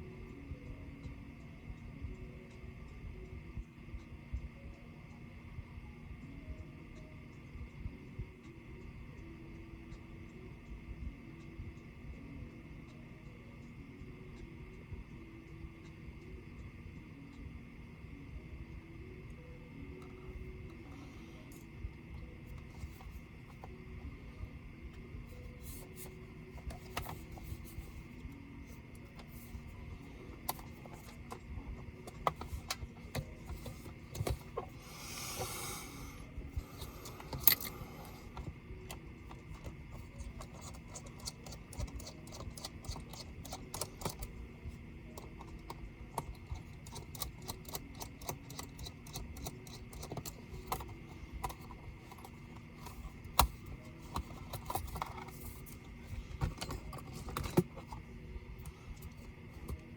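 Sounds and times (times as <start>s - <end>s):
tools clicking and tapping: 30.4s - 34.8s, 36.6s - 44.4s, 45.1s - 58.0s.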